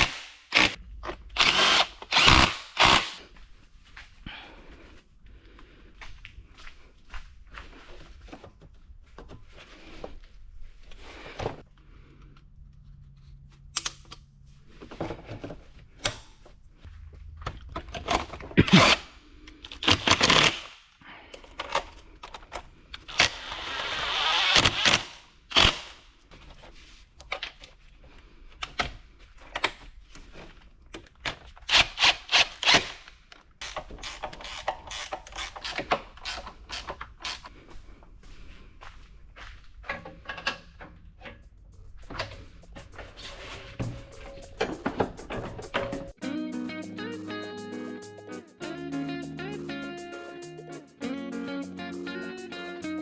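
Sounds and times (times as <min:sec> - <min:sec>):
tools and metal parts clanking: 0:39.8 - 0:46.2.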